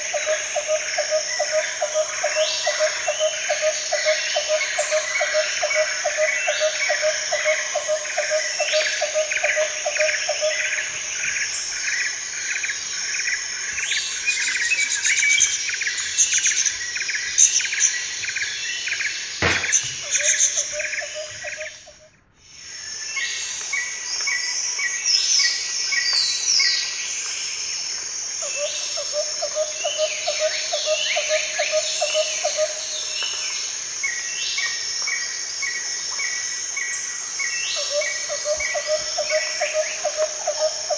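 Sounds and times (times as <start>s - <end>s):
birds chirping and calling: 0.0s - 22.1s
insects chorus with pulsing trills: 0.0s - 40.9s.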